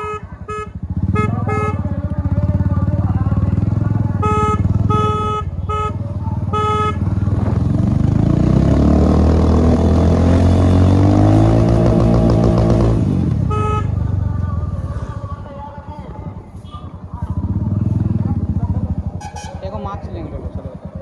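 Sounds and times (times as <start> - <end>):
horn beeping: 0.0 - 2.0, 4.0 - 7.2, 13.3 - 14.0, 19.2 - 19.9
motorcycle engine accelerating: 0.0 - 21.0.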